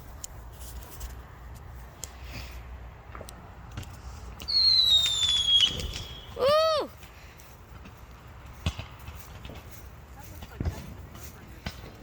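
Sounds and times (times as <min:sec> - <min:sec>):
whistling firework: 0:04.4 - 0:06.4.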